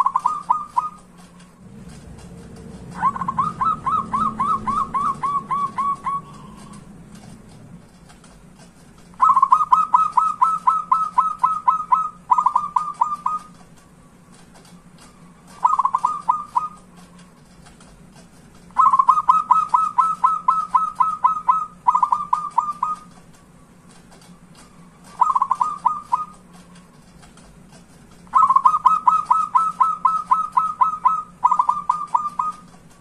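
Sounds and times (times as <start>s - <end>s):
dove cooing: 0.0s - 1.1s, 1.9s - 6.9s, 9.2s - 13.5s, 15.4s - 16.9s, 18.7s - 23.1s, 24.7s - 26.5s, 28.3s - 32.7s.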